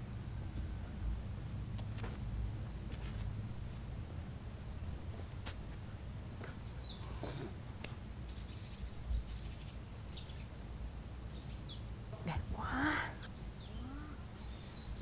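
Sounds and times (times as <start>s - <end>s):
low steady rumble: 0.0s - 15.0s
birds chirping: 4.4s - 5.4s, 6.4s - 15.0s.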